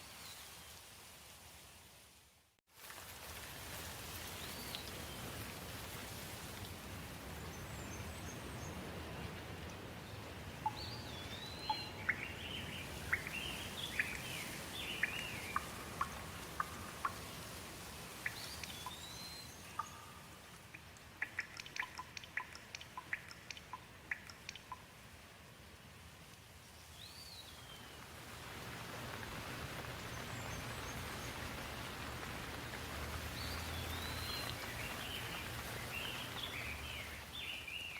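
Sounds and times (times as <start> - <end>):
steady rain: 0.0 - 37.9
water drips pattering: 2.8 - 25.0, 28.0 - 37.9
songbirds chirping: 7.0 - 24.9, 26.5 - 37.9.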